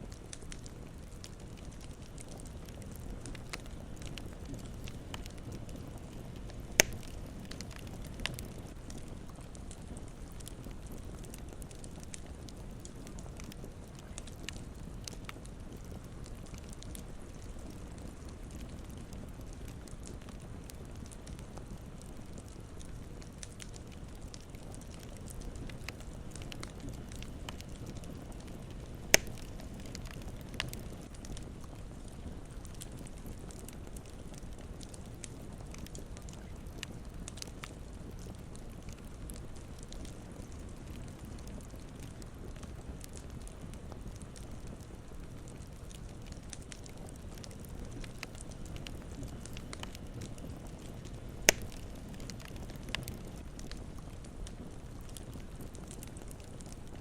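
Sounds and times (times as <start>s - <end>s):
campfire rumble: 0.0s - 57.0s
fire crackles: 0.0s - 57.0s
loud fire pops: 6.4s - 9.0s, 24.2s - 31.2s, 45.7s - 54.2s
loud sharp pop: 6.8s - 7.0s, 29.2s - 29.4s, 51.5s - 51.8s.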